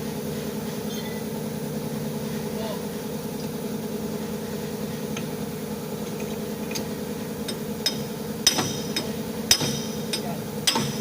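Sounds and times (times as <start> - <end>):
engine idling hum: 0.0 - 11.0
tools tapping on metal: 6.1 - 11.0.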